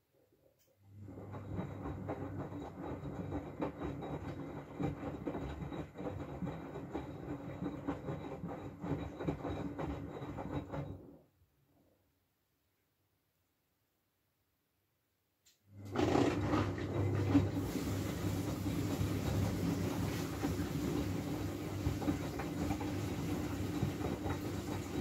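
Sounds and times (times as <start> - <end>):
washing machine motor hum: 0.8 - 11.3, 15.7 - 25.0
laundry and water sloshing in drum: 15.8 - 25.0.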